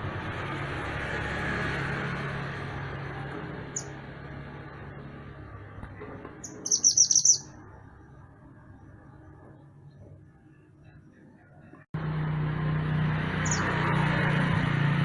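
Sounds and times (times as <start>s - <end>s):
songbird chirping: 6.4s - 7.6s, 13.4s - 13.8s.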